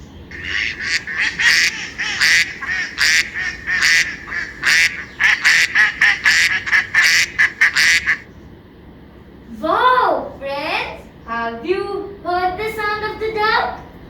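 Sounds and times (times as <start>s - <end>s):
duck quacking: 0.3s - 8.2s.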